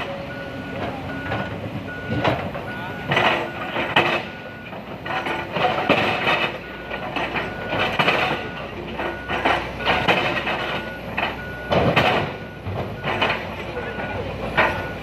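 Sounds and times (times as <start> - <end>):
warning alarm beeping: 0.0 - 15.0.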